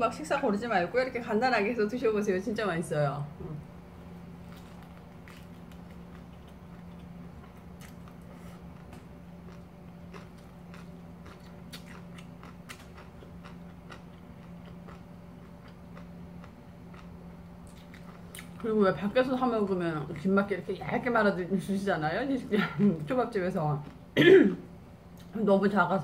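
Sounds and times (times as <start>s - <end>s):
biting and chewing food: 4.4s - 18.7s
small crackles of food and mouth: 4.4s - 18.7s.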